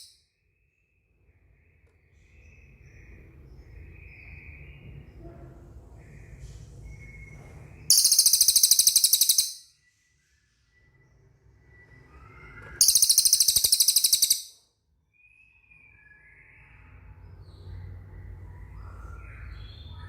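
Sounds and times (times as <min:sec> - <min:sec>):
songbird high-pitched trills: 0:07.9 - 0:09.7, 0:12.2 - 0:14.6.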